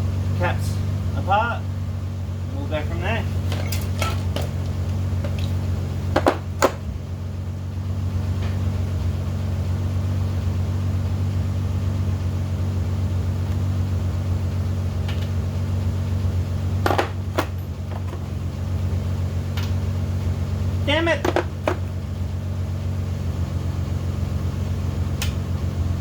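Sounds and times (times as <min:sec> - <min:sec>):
low machine hum: 0:00.0 - 0:26.0
tools clinking on metal: 0:03.4 - 0:05.6, 0:16.8 - 0:18.2, 0:21.2 - 0:21.9.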